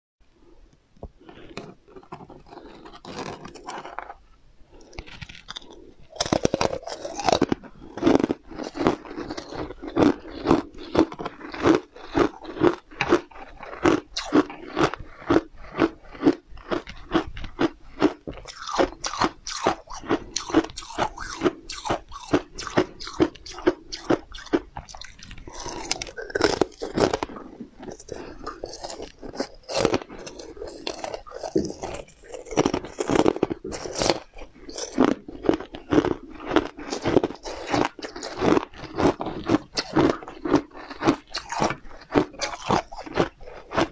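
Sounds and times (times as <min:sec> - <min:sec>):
candy scraping on metal tray: 0:01.2 - 0:04.2
crunching hard candy: 0:01.2 - 0:43.9.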